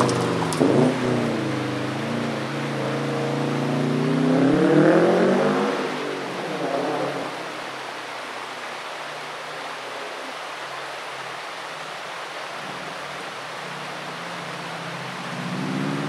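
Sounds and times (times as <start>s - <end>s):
car engine hum: 0.0s - 8.2s, 12.7s - 16.0s.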